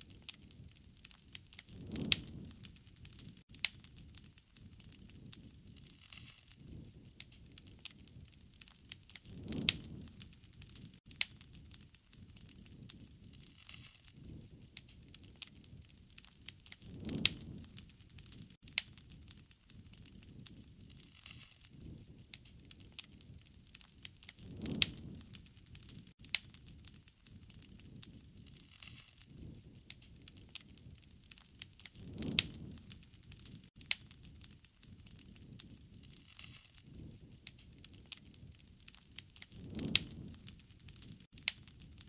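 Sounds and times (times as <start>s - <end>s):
wood fire crackling and popping: 0.0s - 42.0s.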